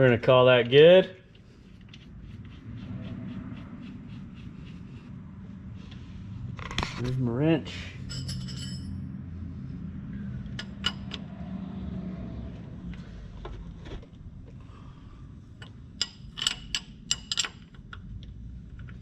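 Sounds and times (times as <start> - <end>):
wrench clinking on metal: 8.1 - 9.0, 10.5 - 11.3, 15.6 - 17.9.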